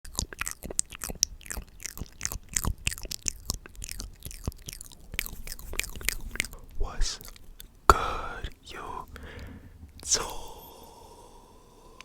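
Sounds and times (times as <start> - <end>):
wet mouth clicks and lip smacks: 0.0 - 10.6.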